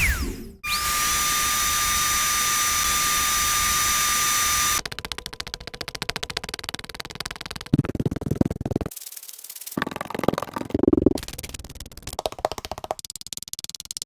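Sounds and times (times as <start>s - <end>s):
rapid fast clicks: 4.2s - 14.0s.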